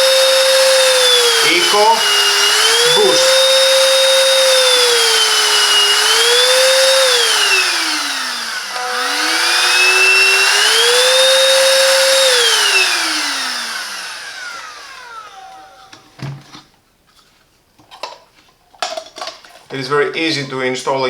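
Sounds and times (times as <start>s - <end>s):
handheld vacuum cleaner motor whining: 0.0s - 16.2s.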